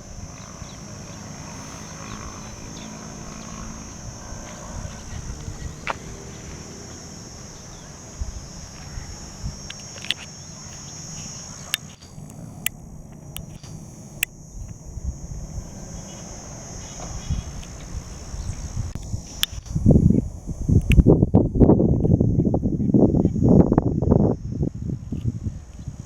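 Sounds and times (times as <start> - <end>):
high-pitched insect drone: 0.0 - 26.0
sharp clicks: 1.5 - 14.9, 16.9 - 21.2.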